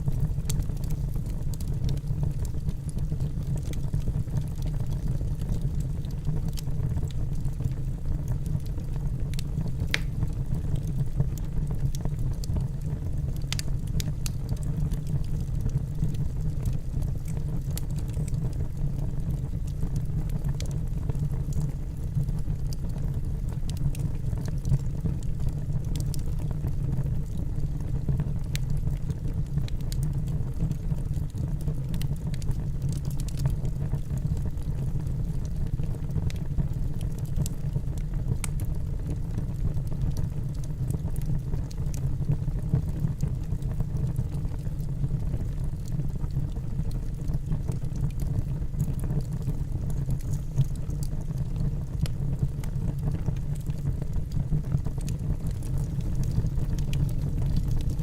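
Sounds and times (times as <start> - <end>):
logs crackling and popping: 0.0 - 58.0
fire flames roaring: 9.3 - 10.5, 40.1 - 58.0.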